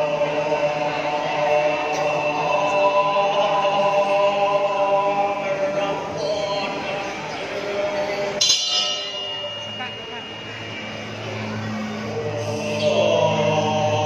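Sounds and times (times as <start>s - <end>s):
held chanting voices: 0.0s - 14.0s
ringing metallic strike: 8.2s - 13.1s.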